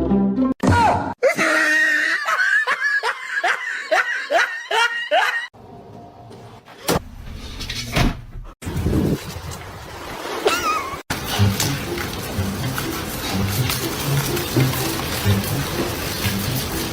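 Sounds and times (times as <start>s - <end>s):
person laughing: 1.2s - 5.5s, 10.5s - 11.0s.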